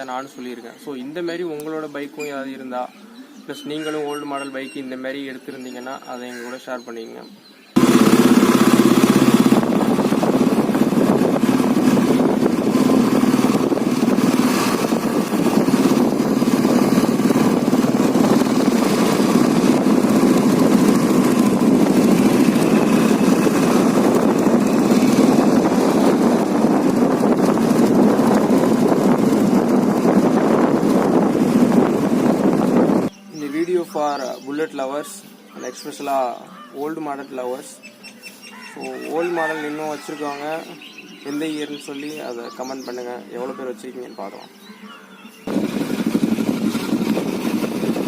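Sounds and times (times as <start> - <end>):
motorcycle engine running: 7.8 - 33.2, 45.5 - 48.0.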